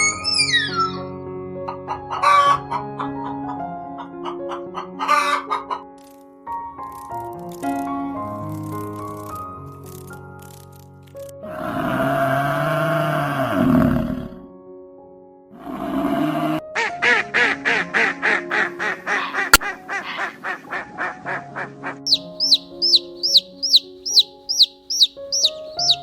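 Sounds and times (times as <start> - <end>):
background music: 0.0 - 26.0
duck quacking rapidly: 2.1 - 2.6, 4.5 - 5.8, 16.8 - 24.2
high falling chirps: 22.1 - 26.0.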